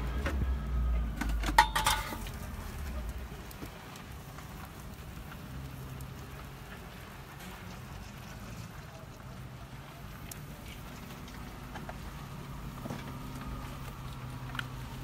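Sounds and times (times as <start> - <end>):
utensil clanking on pan: 1.1 - 2.6
food sizzling in a pan: 1.9 - 15.0.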